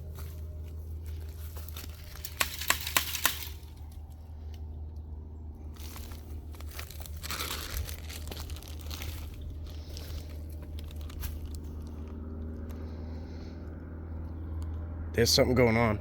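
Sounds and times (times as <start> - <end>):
dry leaves crunching: 0.0 - 4.7, 5.6 - 13.1
steady low hum: 0.0 - 16.0.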